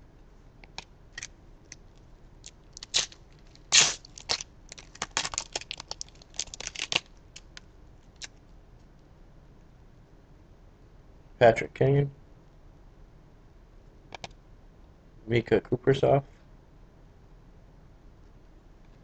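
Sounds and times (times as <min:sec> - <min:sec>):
cards rustling and crinkling: 0:00.7 - 0:08.3
foil pack tearing: 0:02.4 - 0:07.6.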